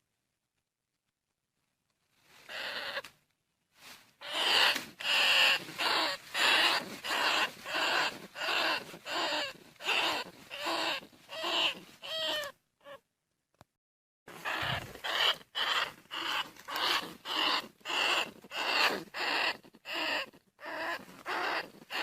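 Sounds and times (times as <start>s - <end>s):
rat rasping squeals: 2.5s - 3.1s, 4.2s - 13.0s, 14.3s - 22.0s.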